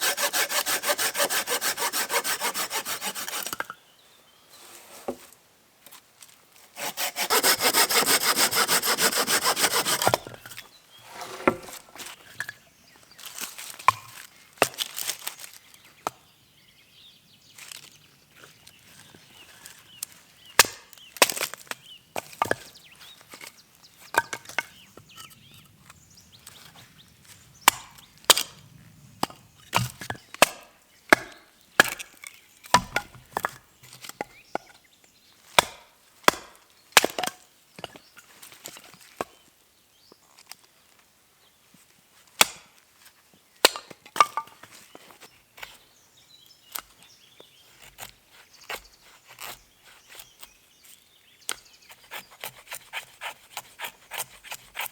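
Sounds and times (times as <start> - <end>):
wood splitting blows: 0.0 - 3.7, 6.8 - 12.0.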